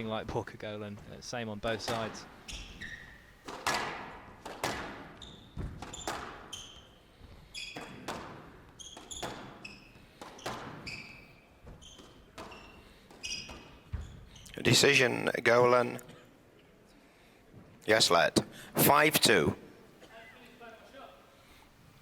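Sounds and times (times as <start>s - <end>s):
shoes squeaking on court floor: 1.8s - 14.6s
squash ball cracking off rackets: 3.4s - 6.5s.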